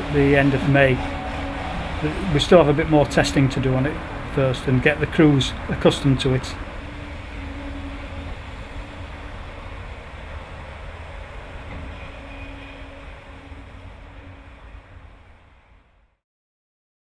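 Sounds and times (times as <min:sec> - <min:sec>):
steam locomotive rumble and hiss: 0:00.0 - 0:16.1.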